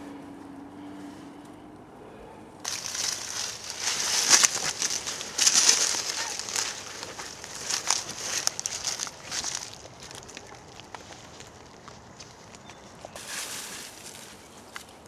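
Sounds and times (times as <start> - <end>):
twigs snapping: 2.6 - 13.2
dry brush and leaves rustling: 2.6 - 15.0.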